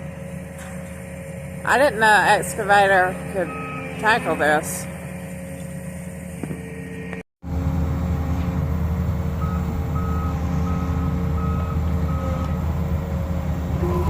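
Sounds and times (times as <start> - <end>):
excavator diesel engine running: 0.0 - 14.0
backup alarm beeping: 1.2 - 7.2, 9.4 - 12.6.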